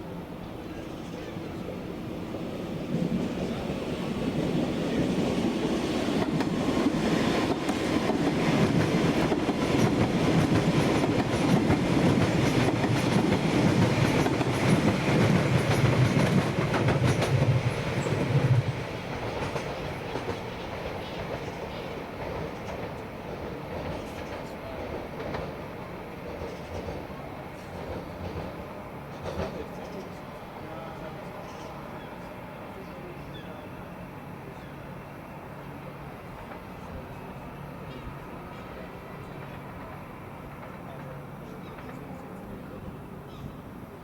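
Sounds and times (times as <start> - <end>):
train wheels clicking over rail joints: 5.3 - 30.1, 37.8 - 42.2.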